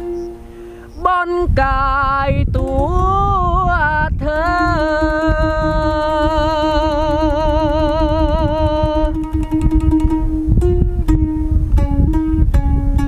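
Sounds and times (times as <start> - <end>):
low drone note: 0.0 - 1.1
person singing with vibrato: 0.0 - 11.6
plucked string accompaniment: 0.0 - 13.0.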